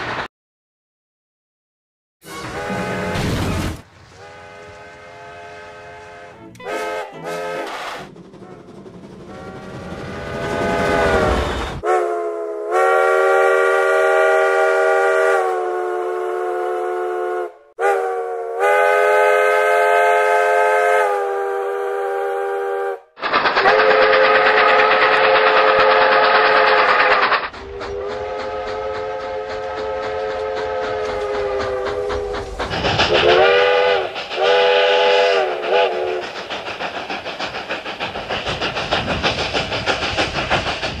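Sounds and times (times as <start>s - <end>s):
steam locomotive chime whistle: 2.2s - 3.2s, 4.2s - 8.6s, 9.3s - 23.0s, 33.2s - 36.2s
train running rhythmic beat: 4.2s - 15.6s, 23.2s - 41.0s.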